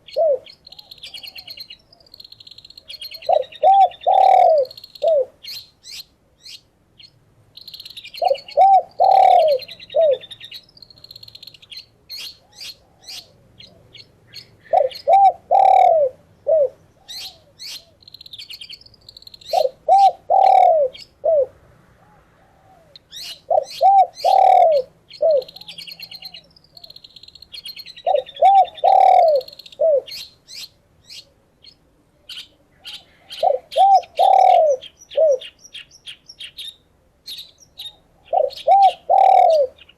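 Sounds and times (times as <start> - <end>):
dove cooing: 0.0 - 2.2, 2.8 - 5.6, 8.2 - 10.6, 12.1 - 18.0, 19.5 - 27.0, 28.0 - 30.2, 32.7 - 35.6, 37.8 - 39.9
birds chirping and twittering: 0.0 - 39.9.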